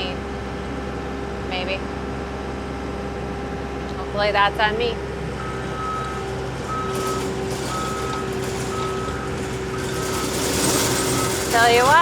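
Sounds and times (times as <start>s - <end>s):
machine engine running: 5.2s - 12.0s
backup alarm beeping: 5.3s - 12.0s.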